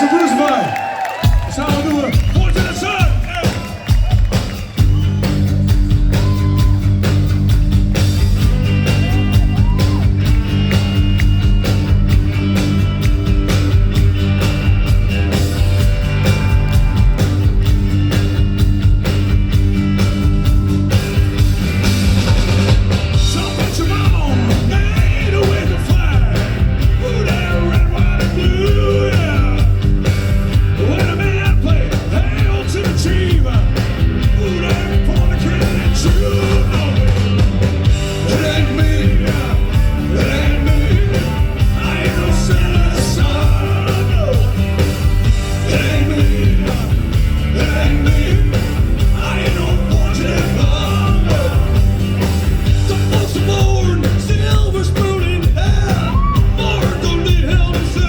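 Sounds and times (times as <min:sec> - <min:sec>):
rock band playing live: 0:00.0 - 0:58.0
steady drumbeat: 0:00.0 - 0:58.0
person singing: 0:23.3 - 0:29.8, 0:30.8 - 0:37.4, 0:38.1 - 0:44.8, 0:45.5 - 0:51.8.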